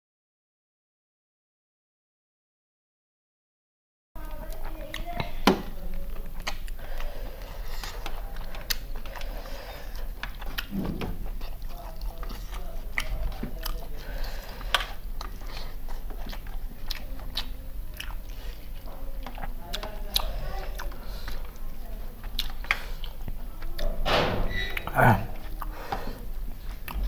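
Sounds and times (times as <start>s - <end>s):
person chewing food: 6.0s - 23.9s, 24.7s - 27.0s.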